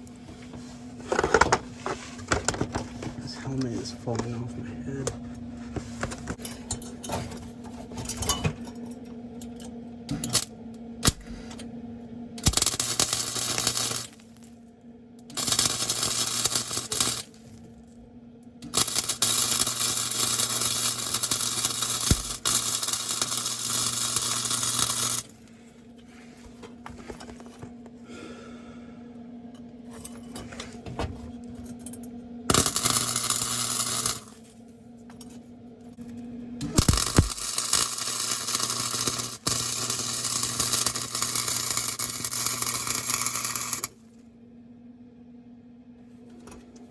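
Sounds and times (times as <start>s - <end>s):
welder steady hum: 0.0s - 46.9s
arc welder crackling and sizzling: 10.1s - 11.6s, 12.4s - 27.8s, 32.4s - 44.0s.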